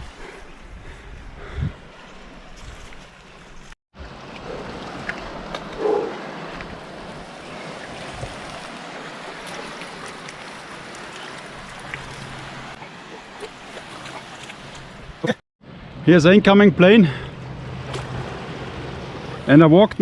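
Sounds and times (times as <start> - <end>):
wind on microphone: 0.0 - 3.7, 4.5 - 8.7.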